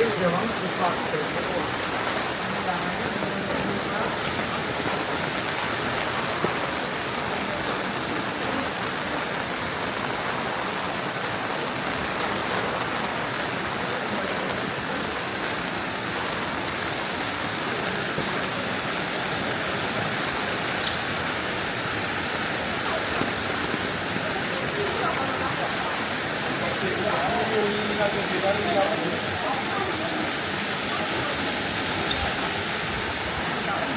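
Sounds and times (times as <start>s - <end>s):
running water rushing: 0.0s - 33.9s.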